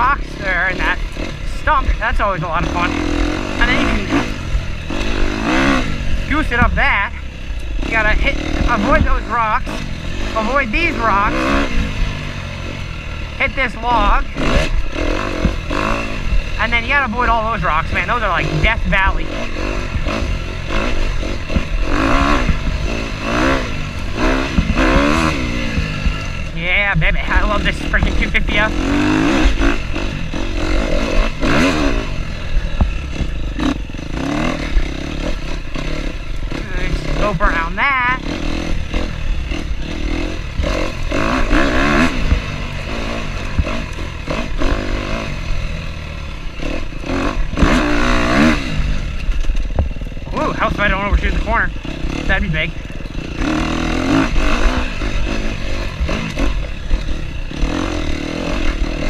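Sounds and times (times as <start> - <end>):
dirt bike engine blipping: 0.0 - 59.0.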